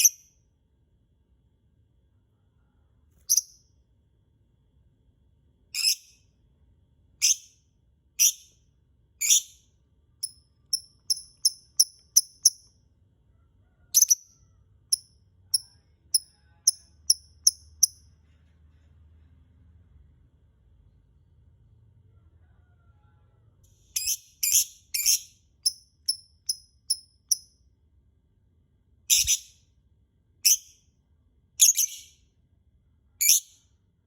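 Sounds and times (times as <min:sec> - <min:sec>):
lovebird shrieking and chirping: 0:29.1 - 0:29.5.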